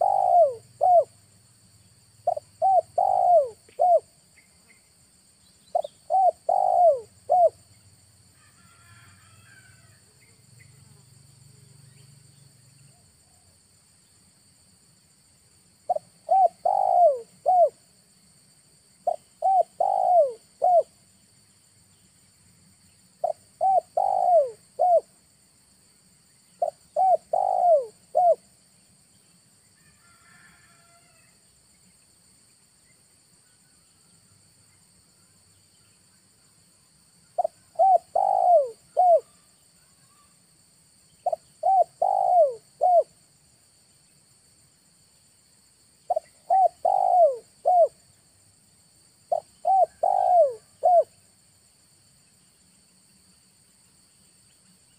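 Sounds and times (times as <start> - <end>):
dove cooing: 0.0 - 1.2, 2.2 - 4.1, 5.7 - 7.6, 15.9 - 17.8, 19.1 - 20.9, 23.2 - 25.1, 26.6 - 28.4, 37.4 - 39.4, 41.2 - 43.1, 46.1 - 48.0, 49.3 - 51.1.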